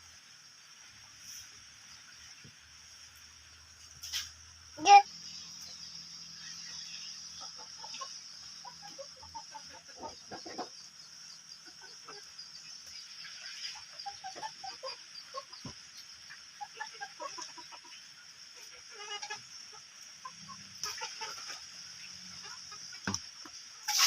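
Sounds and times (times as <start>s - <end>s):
steady high-pitched hiss: 0.0s - 24.0s
chickens clucking: 3.9s - 24.0s
sharp knocks: 23.1s - 23.3s.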